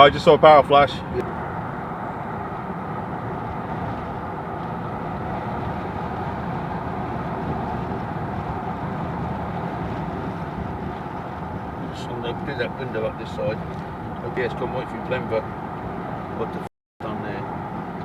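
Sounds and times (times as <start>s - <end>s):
car cabin road and engine noise: 0.0s - 18.0s.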